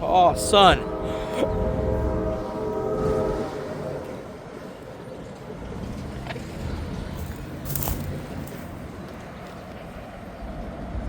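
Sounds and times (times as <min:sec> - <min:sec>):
locomotive air horn: 0:00.0 - 0:06.1
wind rumble on microphone: 0:00.0 - 0:11.0.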